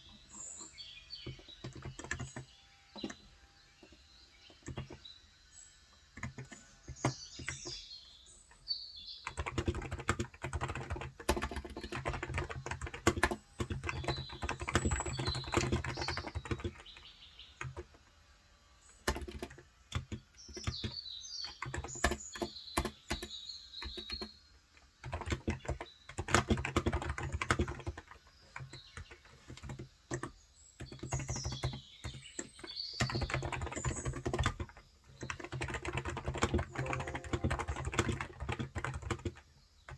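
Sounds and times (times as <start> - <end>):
soft keyboard typing: 0.0 - 5.1, 6.1 - 7.9, 9.2 - 18.0, 19.0 - 39.9
birds chirping: 0.0 - 10.0, 36.6 - 39.1.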